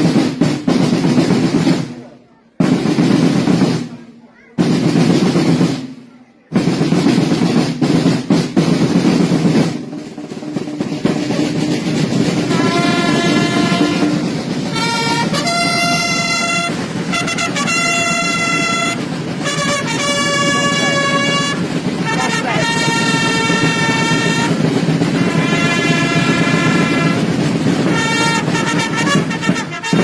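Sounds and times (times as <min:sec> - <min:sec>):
snare drum roll: 0:00.0 - 0:30.0
trumpets long held notes: 0:12.5 - 0:30.0.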